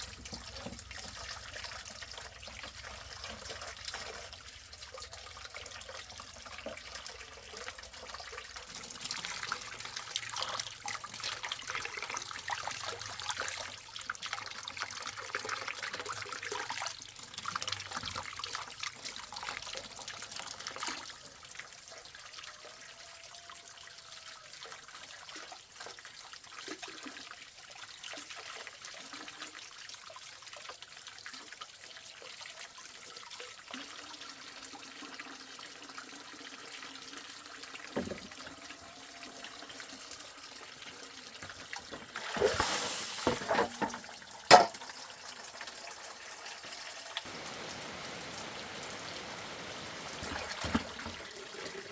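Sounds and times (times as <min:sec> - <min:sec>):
water running and splashing: 0:00.0 - 0:22.0, 0:24.4 - 0:51.9
water dripping: 0:00.0 - 0:24.9.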